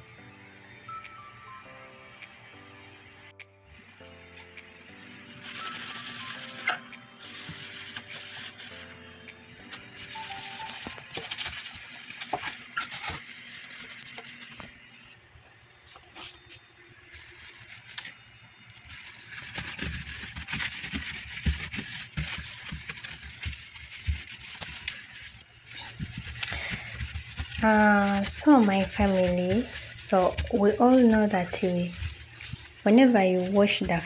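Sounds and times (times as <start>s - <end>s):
scrubbing on plastic: 9.9s - 14.6s, 18.8s - 34.0s.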